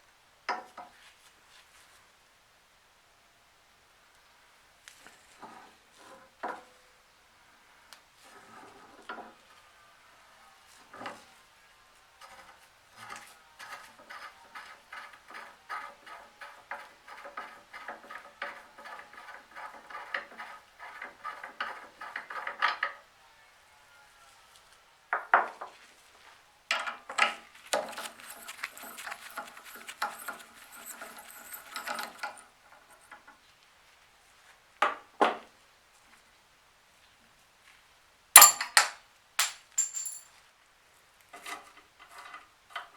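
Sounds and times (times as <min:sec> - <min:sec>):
scraping metal parts: 0:27.7 - 0:32.4, 0:38.4 - 0:40.2
metal knocks and clinks: 0:27.8 - 0:32.4, 0:38.4 - 0:40.3.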